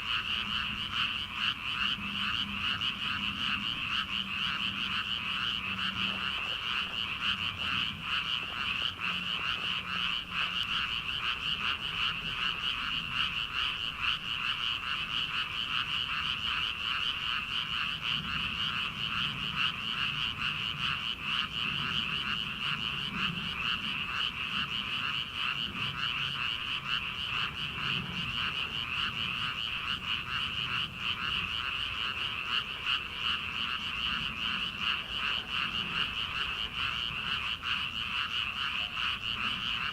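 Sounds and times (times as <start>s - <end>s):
chorus of frogs croaking: 0.0s - 39.9s.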